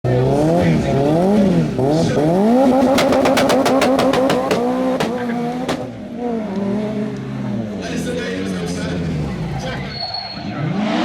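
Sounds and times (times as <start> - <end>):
rally car engine revving: 0.1 - 11.0
exhaust pops and cracks: 2.7 - 6.0.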